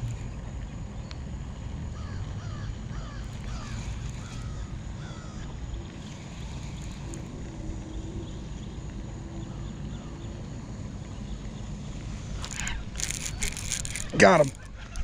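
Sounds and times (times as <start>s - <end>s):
steady low rumble: 0.0s - 15.0s
bird calling: 2.0s - 8.6s, 12.2s - 15.0s.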